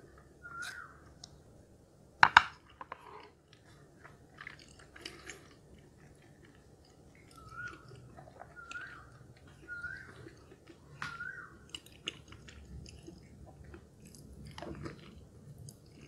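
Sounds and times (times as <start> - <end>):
chewing and mouth sounds: 3.2 - 16.0.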